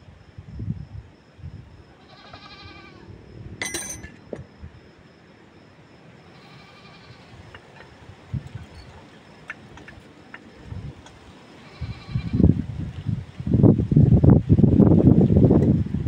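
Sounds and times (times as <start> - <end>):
animal bleating: 2.0 - 3.0, 6.3 - 7.4, 11.6 - 12.4.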